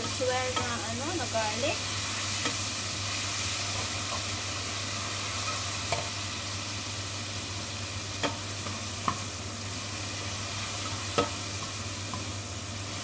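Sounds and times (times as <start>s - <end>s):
shrimp sizzling in a frying pan: 0.0s - 13.0s
spatula scraping and knocking pan: 10.2s - 12.3s.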